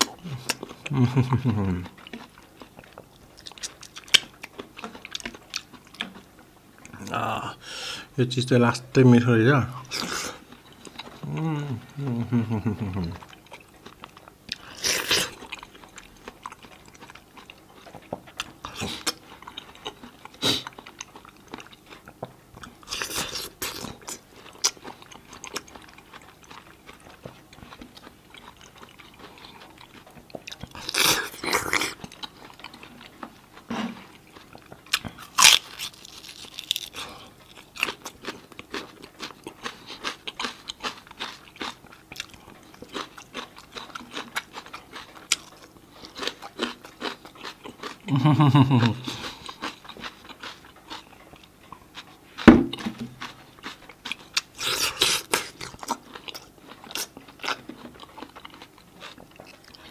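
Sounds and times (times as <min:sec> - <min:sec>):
wet chewing: 0:00.0 - 0:07.5, 0:12.7 - 0:59.9
crunchy biting: 0:27.6 - 0:48.1, 0:52.0 - 0:59.9.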